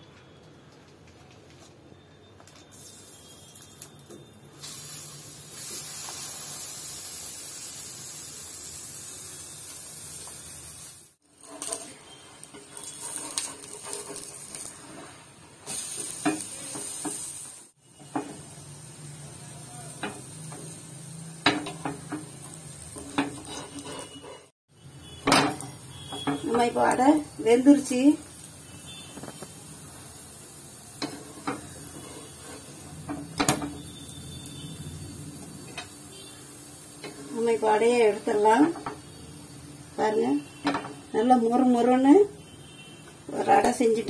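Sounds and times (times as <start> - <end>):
batter sizzling in hot oil: 2.7 - 44.0
spatula scraping a pan: 11.3 - 17.3, 21.5 - 24.6, 31.0 - 33.9.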